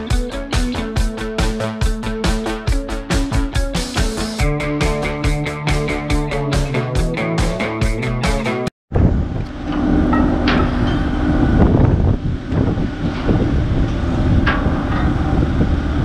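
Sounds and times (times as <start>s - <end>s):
ferry engine drone: 0.0s - 16.0s
wind on microphone: 8.9s - 9.6s, 10.4s - 16.0s.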